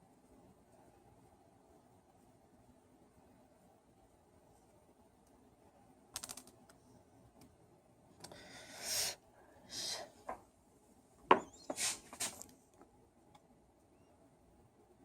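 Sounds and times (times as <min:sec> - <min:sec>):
scraping rubs: 0:11.7 - 0:12.4.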